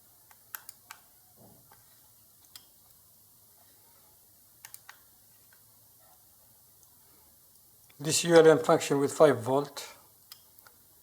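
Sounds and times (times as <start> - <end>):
faint sharp clicks: 4.6 - 5.6, 10.2 - 10.8.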